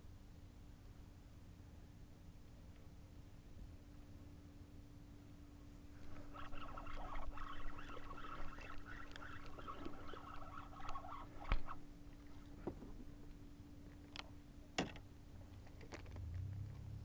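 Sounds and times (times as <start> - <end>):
faint steady hum: 0.0 - 17.0
faint chirring: 5.8 - 13.6
clicks and knocks in kayak: 12.5 - 13.4.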